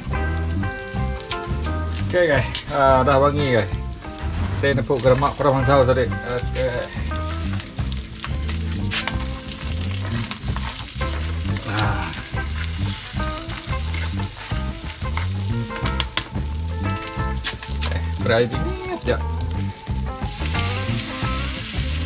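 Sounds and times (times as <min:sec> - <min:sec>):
background music with low beat: 0:00.0 - 0:22.0
crabs sizzling in hot oil: 0:00.0 - 0:22.0
stirring clicks: 0:04.9 - 0:18.3.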